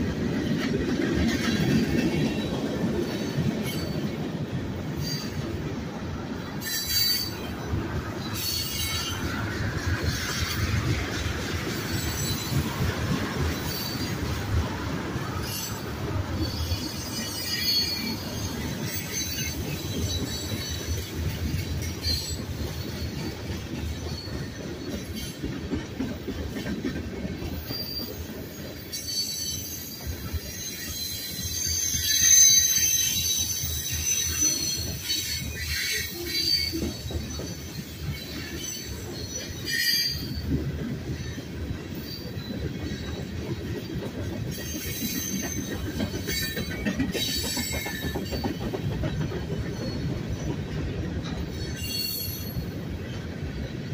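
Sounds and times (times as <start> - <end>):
freight train wheels rumbling: 0.0 - 53.9
wheel squeal: 15.3 - 21.1, 27.6 - 40.5, 44.5 - 50.6, 51.4 - 52.8.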